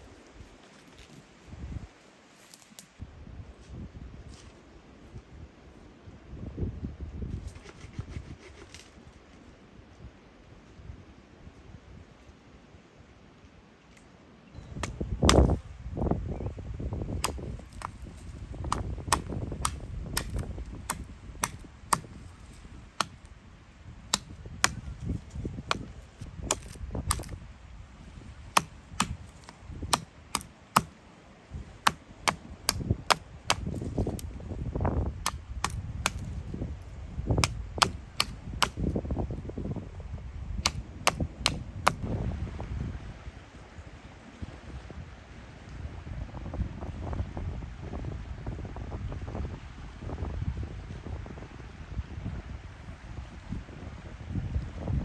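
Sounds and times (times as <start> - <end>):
sharp cracks and knocks: 14.8 - 15.6, 17.2 - 23.3, 24.1 - 27.4, 28.6 - 30.9, 31.9 - 34.3, 35.3 - 36.4, 37.4 - 38.9, 40.7 - 42.0.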